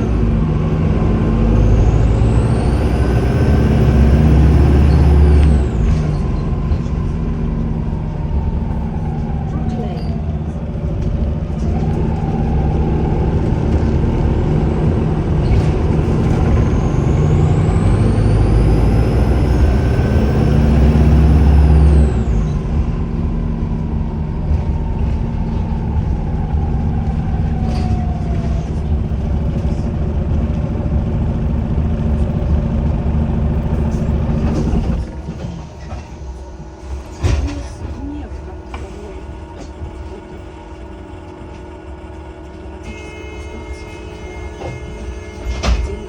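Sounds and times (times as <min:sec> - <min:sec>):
bus engine pulling under load: 0:00.0 - 0:46.0
high turbo whistle: 0:42.8 - 0:46.0.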